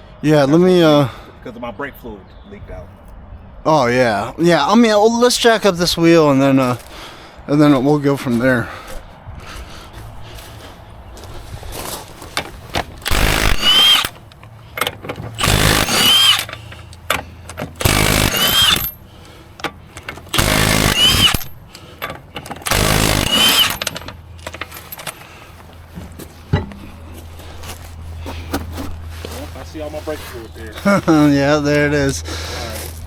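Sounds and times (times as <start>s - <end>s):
impact wrench bursts: 12.3s - 26.8s.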